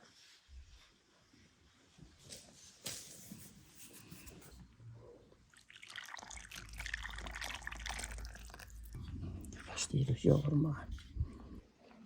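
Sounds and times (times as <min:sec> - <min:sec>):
liquid pouring into a bowl: 0:05.5 - 0:09.8.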